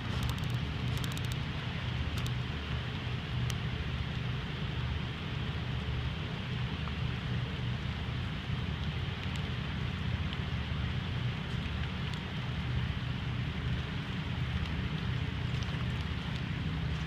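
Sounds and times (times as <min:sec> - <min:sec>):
faint ticks: 0:00.0 - 0:01.4, 0:02.1 - 0:02.4, 0:08.8 - 0:09.5
rushing river water: 0:00.0 - 0:17.0.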